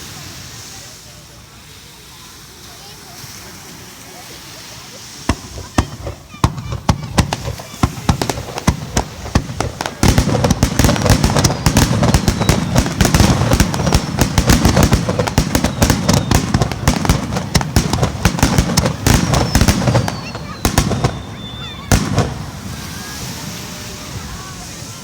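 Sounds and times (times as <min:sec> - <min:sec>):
firework booms and crackle: 0:05.2 - 0:24.7
firework shells bursting: 0:05.3 - 0:23.3.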